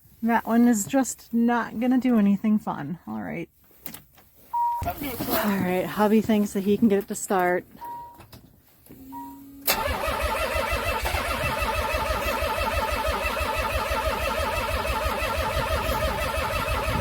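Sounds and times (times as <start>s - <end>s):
car starter motor cranking: 9.6s - 17.0s.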